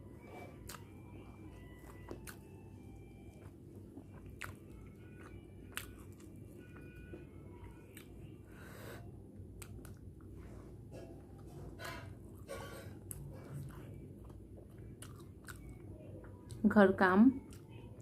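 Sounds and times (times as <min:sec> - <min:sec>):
person chewing food: 0:00.2 - 0:10.5, 0:11.1 - 0:16.6, 0:17.4 - 0:18.0.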